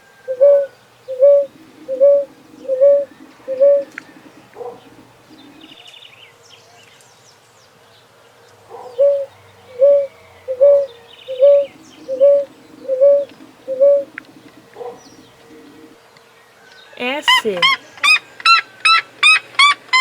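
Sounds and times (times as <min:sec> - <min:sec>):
dove cooing: 0:00.0 - 0:05.8, 0:08.7 - 0:16.0.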